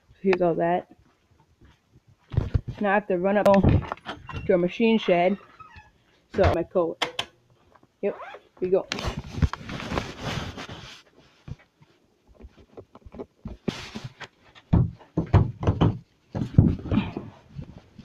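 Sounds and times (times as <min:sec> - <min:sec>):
footsteps: 0:00.4 - 0:03.0
coat rustling: 0:09.0 - 0:12.8.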